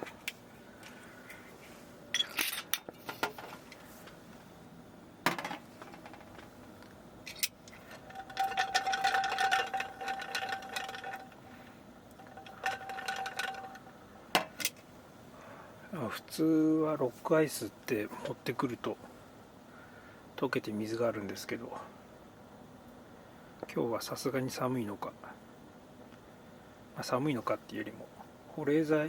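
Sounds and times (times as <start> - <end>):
ice clinking in glass: 8.1 - 11.3.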